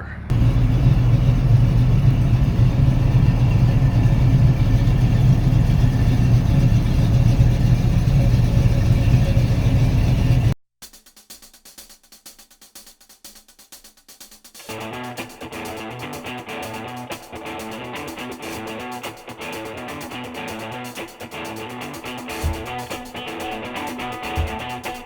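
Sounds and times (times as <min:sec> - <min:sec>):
car engine running steadily: 0:00.3 - 0:10.6, 0:22.0 - 0:25.0.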